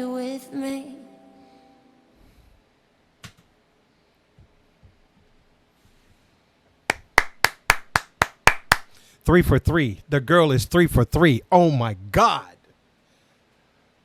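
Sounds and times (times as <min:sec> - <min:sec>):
person clapping: 0:06.9 - 0:09.0.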